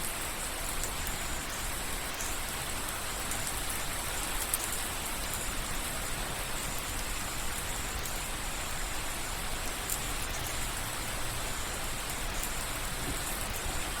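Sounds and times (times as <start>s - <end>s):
soft rain falling: 0.0s - 14.0s.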